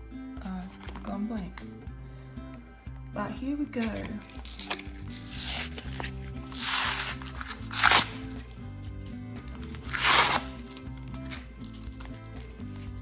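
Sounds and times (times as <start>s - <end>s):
background music: 0.0s - 13.0s
plastic packaging crinkling and tearing: 3.8s - 8.2s, 9.8s - 10.8s.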